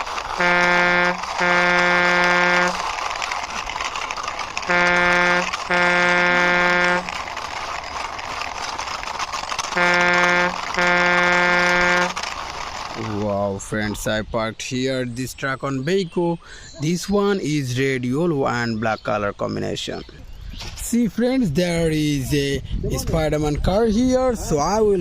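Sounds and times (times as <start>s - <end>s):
truck horn honking: 0.3s - 2.9s, 4.6s - 7.2s, 9.7s - 12.2s.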